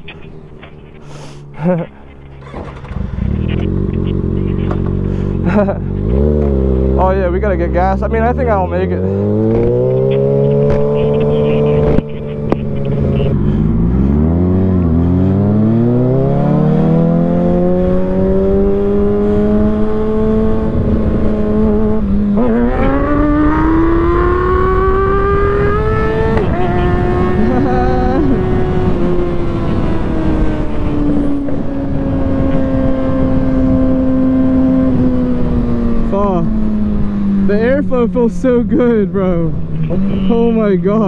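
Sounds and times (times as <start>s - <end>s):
motorcycle engine accelerating: 0.0s - 41.0s
wind rushing over microphone: 9.0s - 40.1s.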